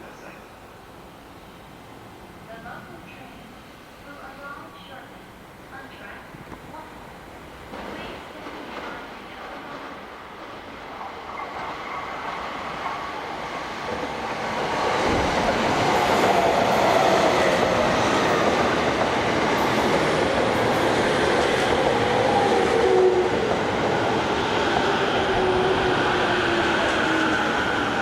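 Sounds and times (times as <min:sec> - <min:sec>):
electric train running on track: 0:08.4 - 0:28.0.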